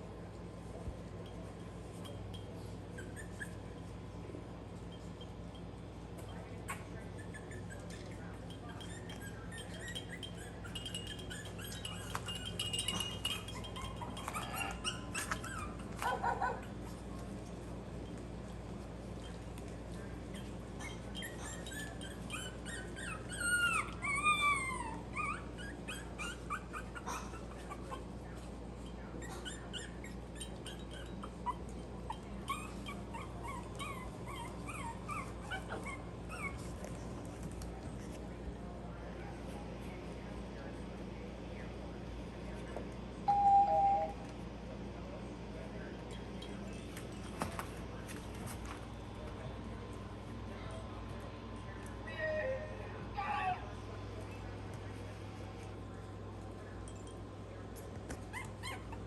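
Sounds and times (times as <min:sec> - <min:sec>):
puppies whimpering and squeaking: 0:02.0 - 0:04.2, 0:06.6 - 0:17.0, 0:20.2 - 0:28.2, 0:28.8 - 0:37.0, 0:58.1 - 0:59.0.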